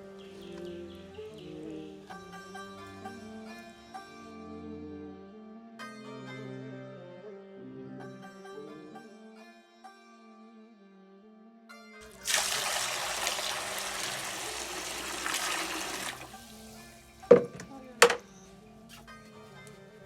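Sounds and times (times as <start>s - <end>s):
background music: 0.0s - 20.0s
water pouring: 12.0s - 17.5s
sharp knocks: 17.3s - 18.2s.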